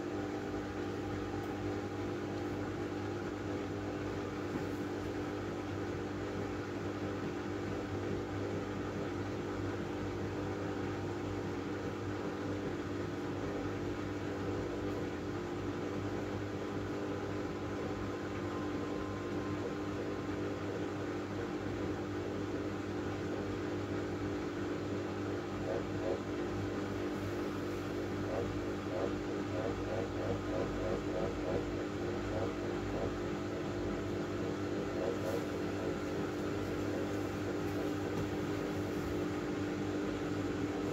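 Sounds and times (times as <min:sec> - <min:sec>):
washing machine motor hum: 0:00.0 - 0:40.9
faint rapid rhythmic rattle: 0:28.2 - 0:33.6.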